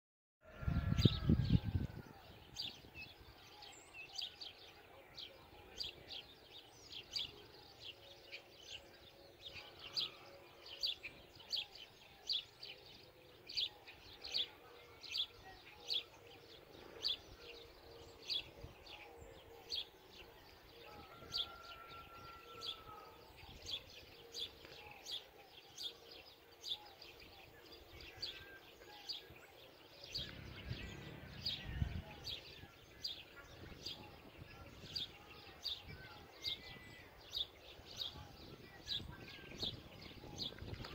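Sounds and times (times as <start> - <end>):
bird chirping: 0.5 - 40.9
low rumble: 30.1 - 32.7.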